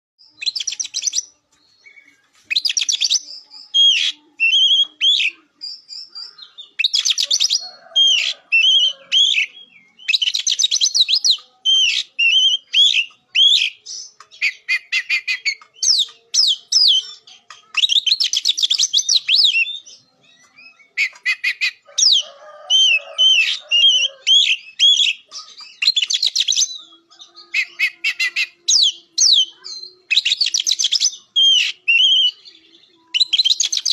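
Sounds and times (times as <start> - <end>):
bird singing trills and whistles: 0.2 - 33.9.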